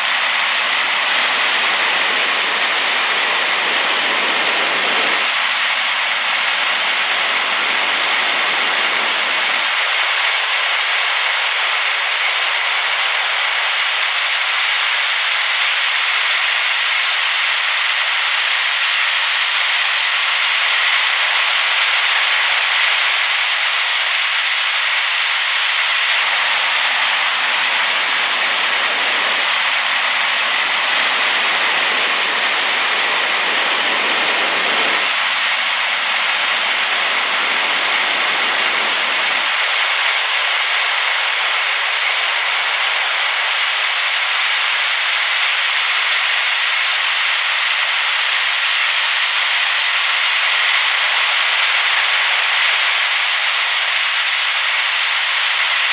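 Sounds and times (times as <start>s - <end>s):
waterfall rushing: 0.0s - 9.8s, 26.1s - 44.2s.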